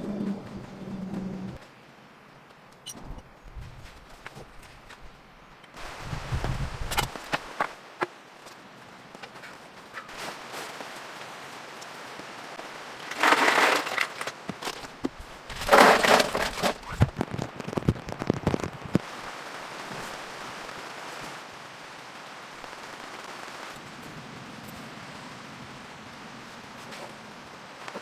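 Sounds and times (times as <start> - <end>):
rain hissing: 5.7 - 28.0.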